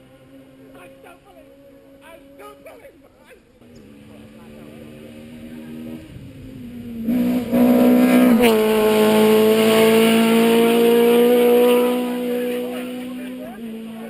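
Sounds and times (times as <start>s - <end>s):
rally car engine at high revs: 3.6s - 14.0s.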